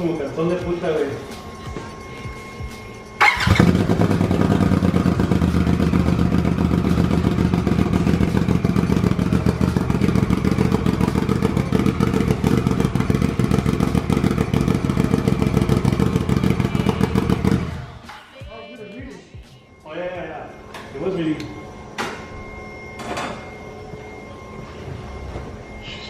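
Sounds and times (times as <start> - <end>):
engine cranking and idling: 3.1 - 18.0.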